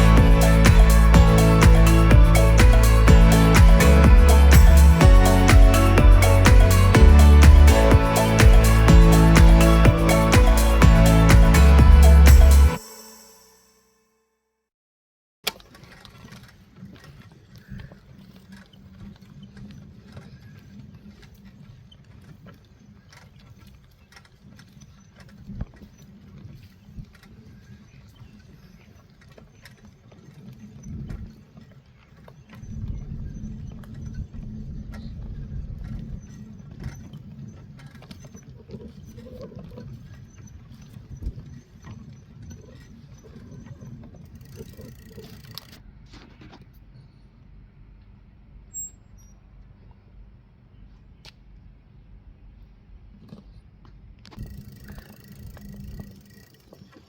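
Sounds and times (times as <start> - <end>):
bicycle tyres rumbling: 54.4 - 57.0.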